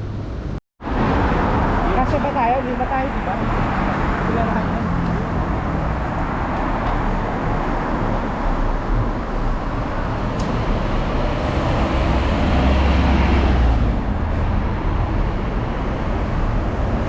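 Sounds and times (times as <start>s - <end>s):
heavy vehicle passing rumble: 0.0s - 17.0s
road traffic noise: 0.0s - 17.0s.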